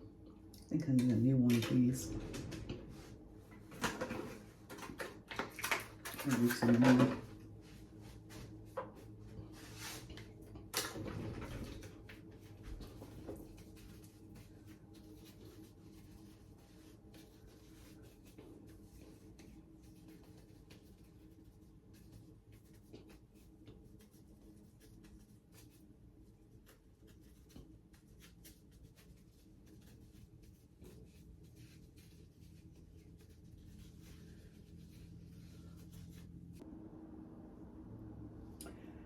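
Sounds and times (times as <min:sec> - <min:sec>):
low steady hum: 0:00.0 - 0:39.0
faint scratching: 0:11.1 - 0:36.7.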